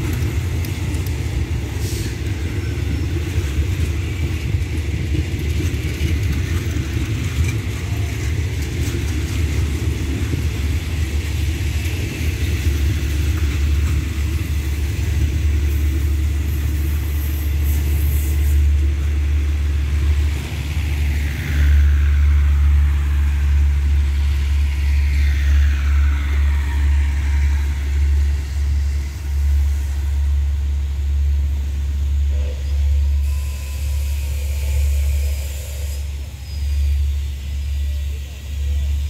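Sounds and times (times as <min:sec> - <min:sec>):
train carriages rolling past: 0:00.0 - 0:39.0
faint falling whines: 0:07.4 - 0:39.0.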